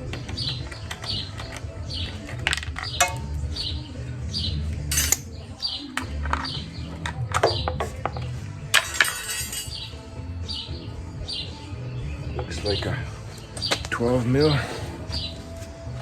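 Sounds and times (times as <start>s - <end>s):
bird chirping: 0.0s - 8.5s, 9.6s - 16.0s
metal tools clinking on engine: 4.9s - 5.3s, 8.8s - 9.8s.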